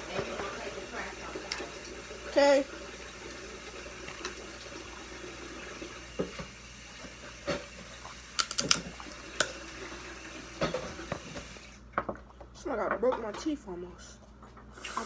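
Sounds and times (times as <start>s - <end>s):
tap running: 0.0s - 12.1s
sharp clicks and cracks: 8.4s - 9.6s.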